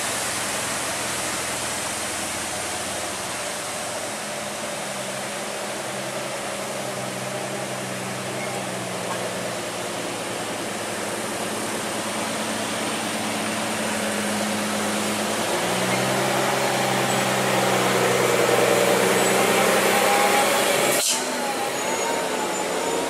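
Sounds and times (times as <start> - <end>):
heavy machine engine running: 0.0 - 23.0
machine with wavering tone: 15.8 - 23.0.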